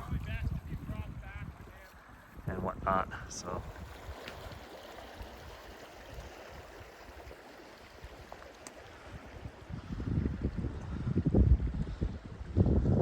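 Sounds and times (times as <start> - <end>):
wind buffeting microphone: 0.0 - 13.0
creek water rushing: 0.2 - 12.7.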